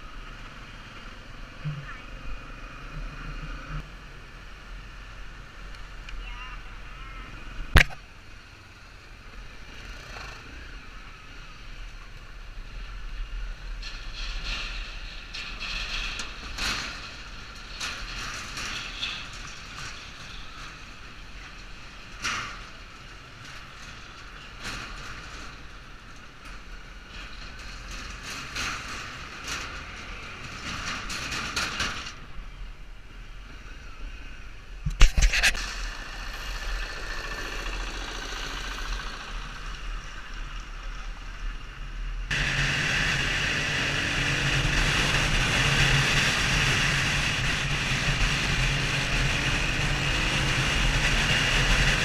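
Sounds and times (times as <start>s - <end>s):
wind and road noise: 0.0s - 52.0s
small motorcycle engine running: 35.6s - 40.2s.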